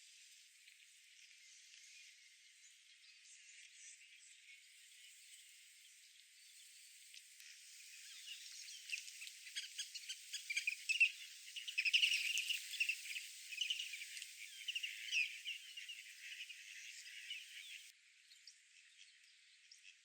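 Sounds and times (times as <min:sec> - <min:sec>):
birds chirping: 0:07.7 - 0:17.9.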